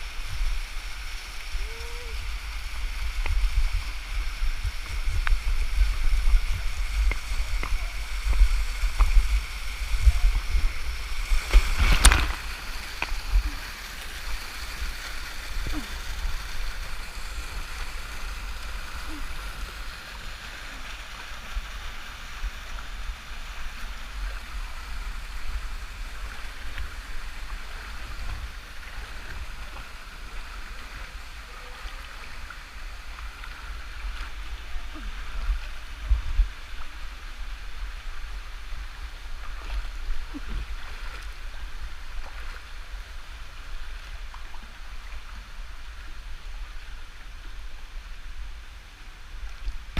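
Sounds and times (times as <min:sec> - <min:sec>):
low rumble on microphone: 0:00.0 - 0:20.0, 0:20.6 - 0:49.9
waterfall water rushing: 0:00.0 - 0:49.9.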